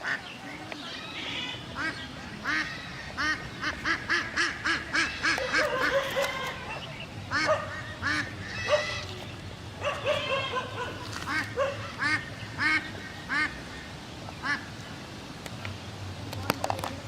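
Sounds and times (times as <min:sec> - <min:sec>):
animal calling in short calls: 0:05.0 - 0:06.9.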